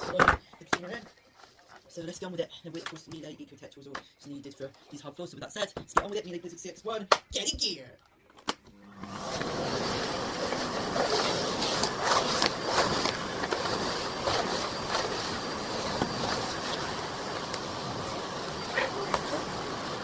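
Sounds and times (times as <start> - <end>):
vacuum cleaner running: 8.8 - 20.0.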